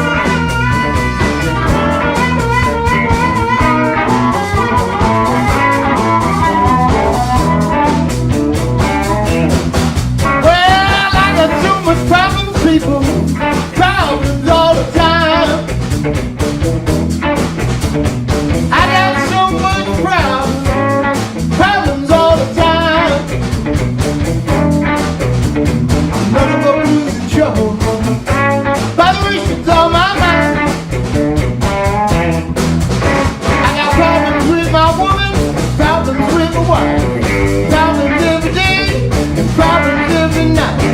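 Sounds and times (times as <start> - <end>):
wavering lead line: 0.0 - 9.5
electric blues band playing: 0.0 - 40.9.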